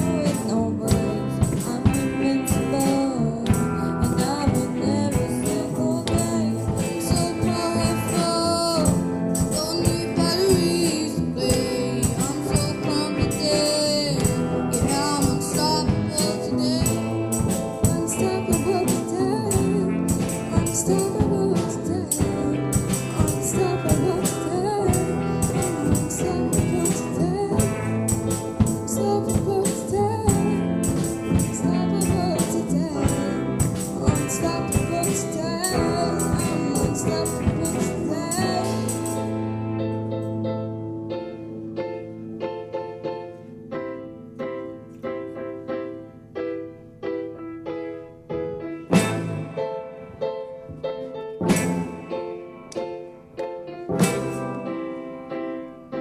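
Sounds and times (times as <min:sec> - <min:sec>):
person singing: 0:00.0 - 0:39.9
tambourine: 0:00.0 - 0:40.4
soul band playing: 0:00.0 - 0:56.0.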